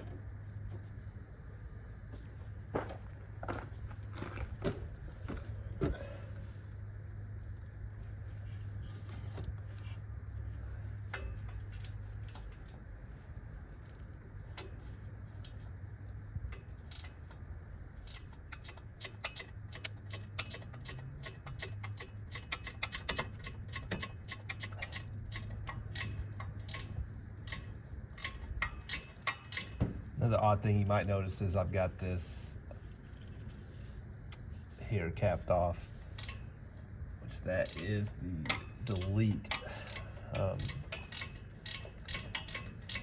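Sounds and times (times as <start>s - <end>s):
steady low hum: 0.0s - 43.0s
ratchet wrench clicking: 16.5s - 17.4s, 18.0s - 29.8s, 36.1s - 36.5s, 37.6s - 43.0s.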